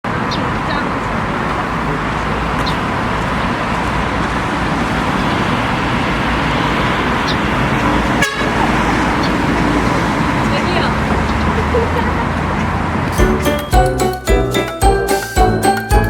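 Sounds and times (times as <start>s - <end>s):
city traffic noise: 0.0s - 16.0s.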